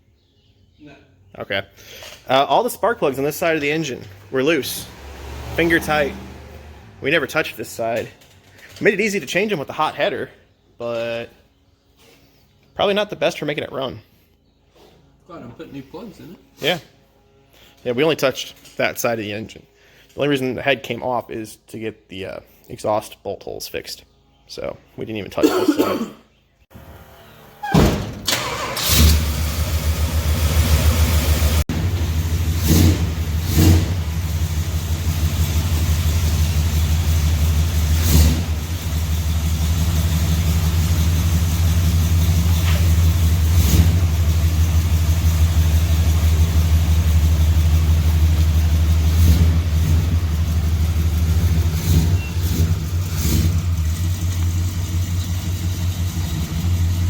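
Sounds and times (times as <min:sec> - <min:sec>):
truck engine starting and running: 0:02.4 - 0:09.7, 0:26.7 - 0:57.0.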